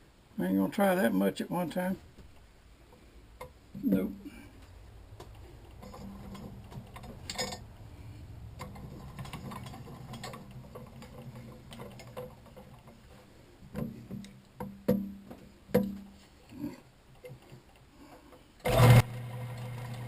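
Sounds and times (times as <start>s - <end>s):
ringing metal clanks: 7.2s - 7.7s.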